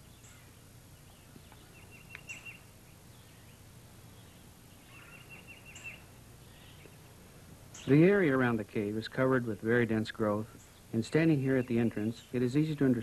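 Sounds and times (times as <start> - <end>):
bird trills: 0.0 - 7.0
low steady hum: 0.0 - 13.0.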